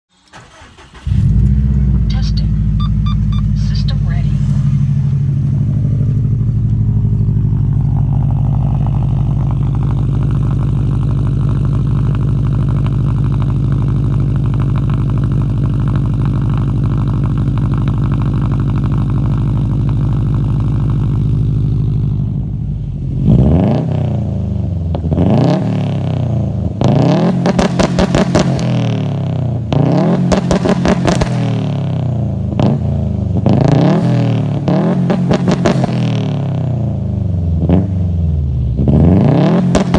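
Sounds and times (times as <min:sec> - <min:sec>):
car engine idling and revving: 0:00.1 - 0:39.9.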